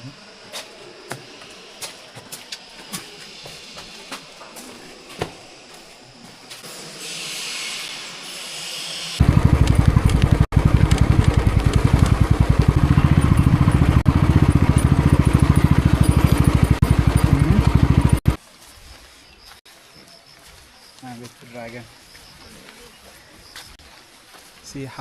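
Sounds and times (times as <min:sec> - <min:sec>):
motorcycle engine running: 0:09.2 - 0:18.4.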